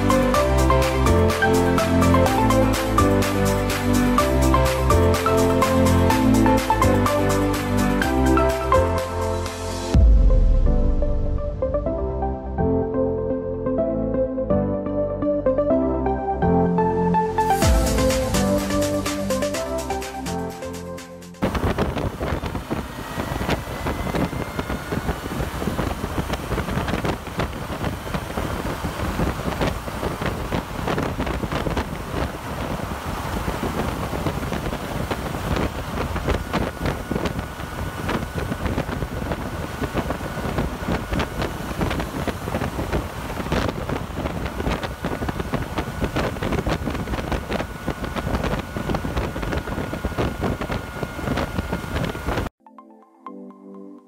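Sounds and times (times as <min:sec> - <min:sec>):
road noise: 0:00.0 - 0:11.8, 0:17.4 - 0:52.5
motorcycle engine: 0:21.4 - 0:52.4
wind buffeting microphone: 0:21.4 - 0:52.5.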